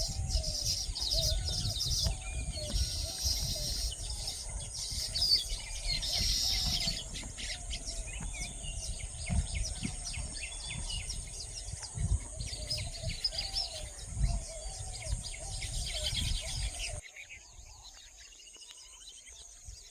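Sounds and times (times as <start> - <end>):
low rumbling thumps: 0.0 - 17.0
small birds chirping: 0.0 - 19.9.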